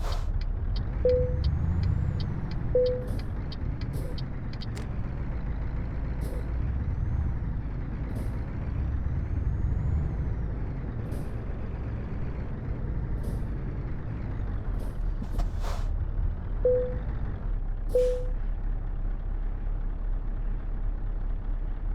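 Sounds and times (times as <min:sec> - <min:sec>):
truck diesel engine rumbling: 0:00.0 - 0:21.9
short beeps: 0:01.0 - 0:01.5, 0:02.7 - 0:03.2, 0:16.7 - 0:17.1, 0:17.9 - 0:18.4.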